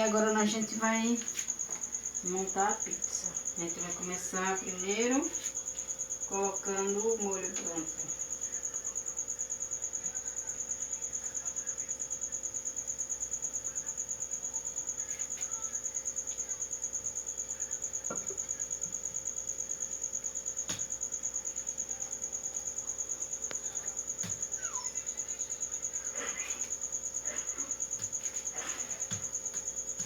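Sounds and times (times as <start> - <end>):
cricket trilling: 0.0 - 30.0.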